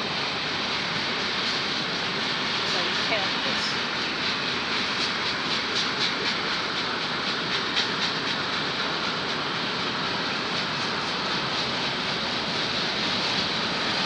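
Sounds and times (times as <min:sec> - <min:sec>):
freight train rumbling past: 0:00.0 - 0:14.0
train wheels clicking over rail joints: 0:04.8 - 0:14.0.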